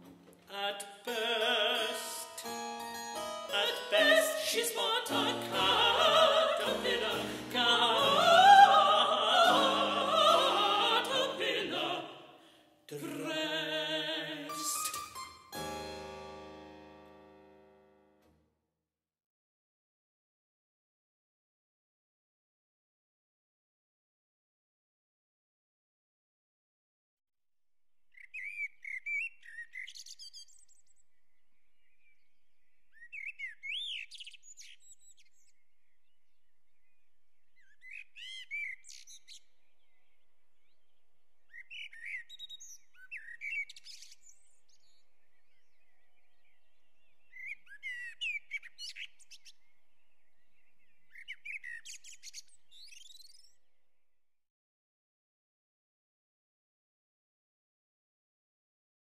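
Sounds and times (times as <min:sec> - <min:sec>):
songbird chirping and trilling: 0:28.1 - 0:54.0.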